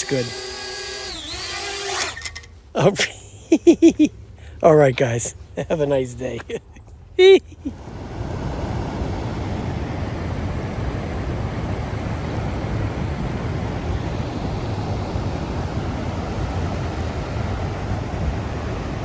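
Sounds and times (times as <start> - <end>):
wind buffeting microphone: 7.7 - 19.0.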